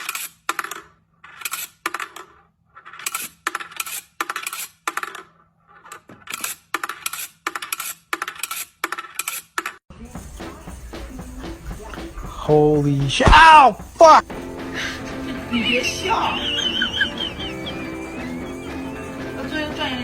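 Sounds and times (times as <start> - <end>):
metallic jingling rattles: 9.9 - 20.0.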